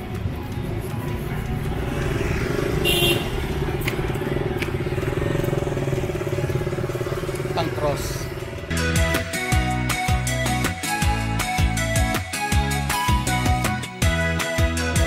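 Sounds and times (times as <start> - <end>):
motorcycle engine running: 0.8 - 9.1.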